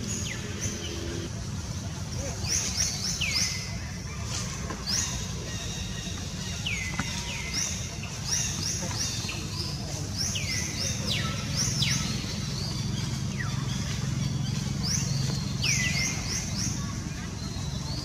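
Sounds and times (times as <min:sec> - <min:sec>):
steady low rumble: 0:00.0 - 0:01.6
birds chirping: 0:00.0 - 0:18.0.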